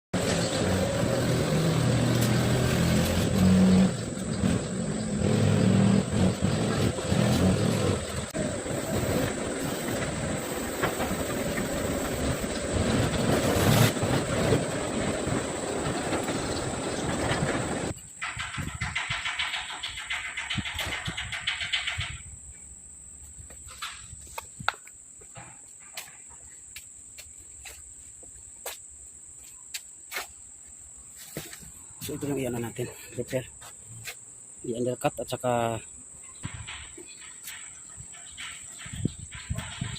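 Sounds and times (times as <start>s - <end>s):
forklift engine humming: 0.1s - 20.5s.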